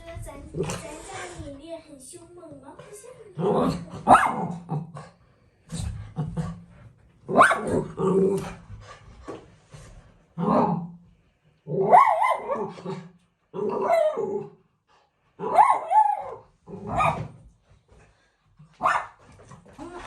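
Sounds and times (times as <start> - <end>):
dog barking: 4.0 - 4.7, 7.3 - 8.0, 11.8 - 13.0, 13.8 - 14.4, 15.4 - 17.4, 18.8 - 19.2.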